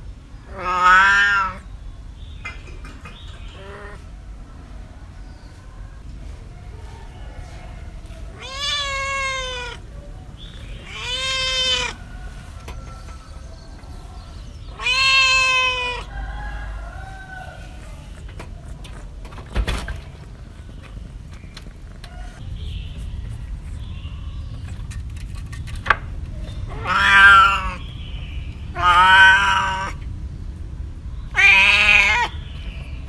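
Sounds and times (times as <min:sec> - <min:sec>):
cat meowing: 0:00.5 - 0:01.7, 0:08.2 - 0:12.4, 0:14.7 - 0:16.1, 0:26.7 - 0:27.9, 0:28.7 - 0:30.0, 0:31.3 - 0:32.4.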